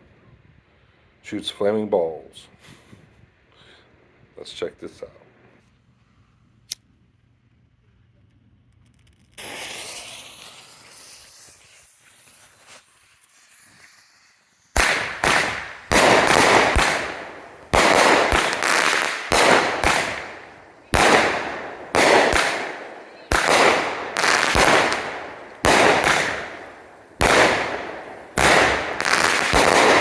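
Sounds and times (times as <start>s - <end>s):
firework cake shots: 8.6s - 30.0s
firework fuse hissing: 8.9s - 30.0s.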